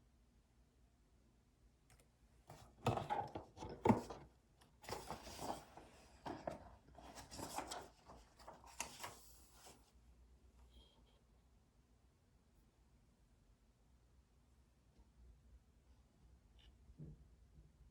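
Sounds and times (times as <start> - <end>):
rustling and shuffling: 2.5 - 10.0.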